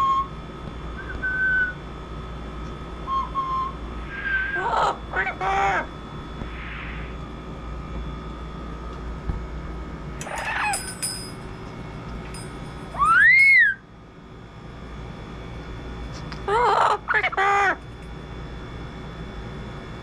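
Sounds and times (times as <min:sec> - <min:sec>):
parrot whistle rising and falling: 0:03.1 - 0:04.6, 0:13.0 - 0:13.8
parrot call: 0:04.1 - 0:05.9, 0:10.3 - 0:10.8.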